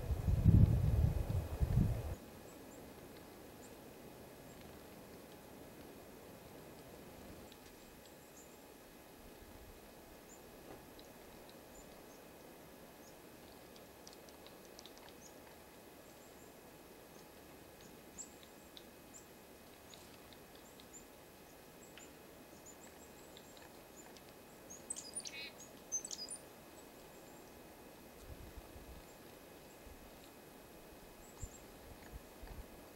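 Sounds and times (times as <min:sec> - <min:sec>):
steady background hiss: 0:00.0 - 0:32.9
small birds chirping: 0:10.2 - 0:28.3, 0:28.9 - 0:30.4, 0:31.1 - 0:32.2.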